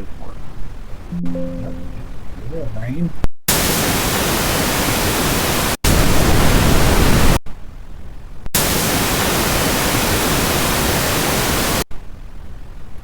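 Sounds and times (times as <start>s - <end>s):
even white noise hiss: 0.0s - 13.0s.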